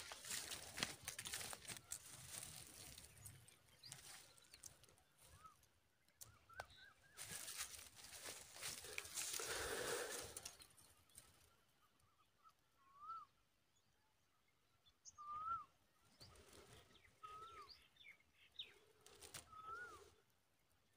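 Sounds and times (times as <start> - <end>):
bird whistled call: 12.8 - 13.4, 15.0 - 15.8.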